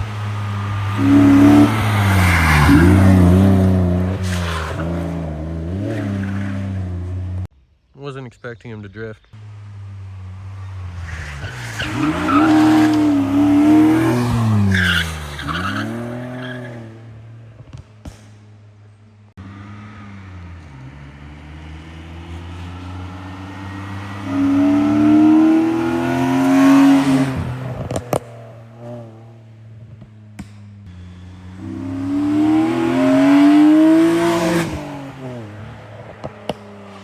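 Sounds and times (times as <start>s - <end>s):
car engine revving hard: 0.0s - 7.5s, 11.1s - 17.1s, 19.4s - 29.9s, 31.1s - 37.0s
tyres squealing: 11.0s - 16.9s.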